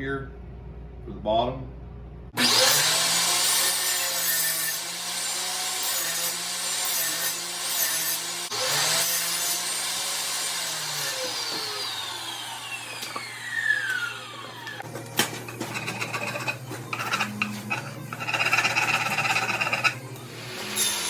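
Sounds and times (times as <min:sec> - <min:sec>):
power saw winding down: 0:02.4 - 0:04.4, 0:10.5 - 0:14.8, 0:16.0 - 0:21.0
wood rubbing and scraping: 0:15.4 - 0:20.0.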